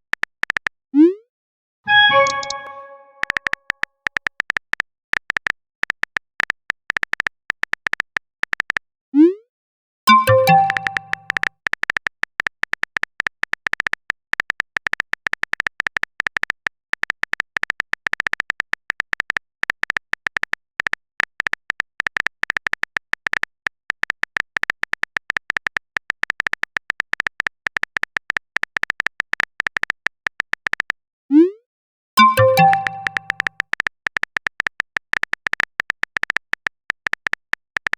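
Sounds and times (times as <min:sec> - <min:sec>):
message notification chime: 0:01.9 - 0:03.3, 0:10.1 - 0:11.4, 0:32.2 - 0:33.5
phone keyboard typing clicks: 0:01.9 - 0:08.8, 0:10.1 - 0:31.0, 0:32.2 - 0:37.9.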